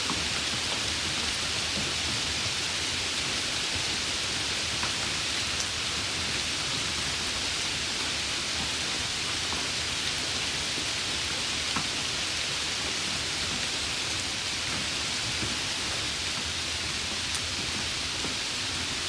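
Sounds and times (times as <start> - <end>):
steady rain hiss: 0.0 - 19.0
faint raindrop ticks: 17.1 - 18.8.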